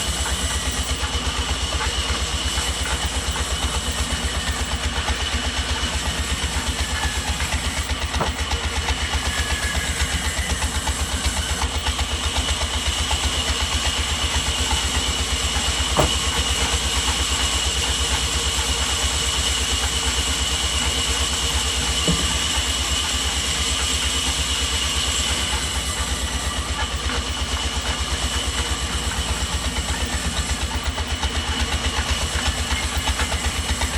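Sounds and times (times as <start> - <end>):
sawmill machinery thrumming: 0.0 - 33.9
sharp knocks: 16.0 - 16.3, 22.0 - 22.5.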